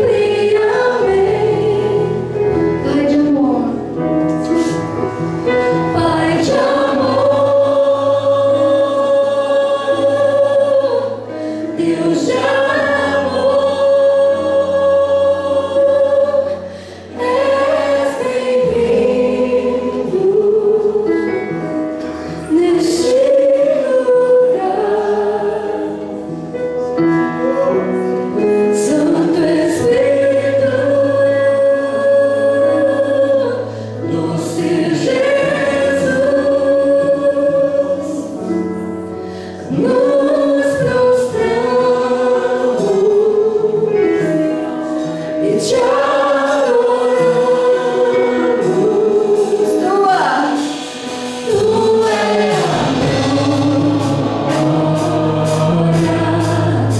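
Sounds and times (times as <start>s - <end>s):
choir singing held notes: 0.0s - 2.9s, 4.4s - 56.9s
sustained bass notes: 51.1s - 56.9s.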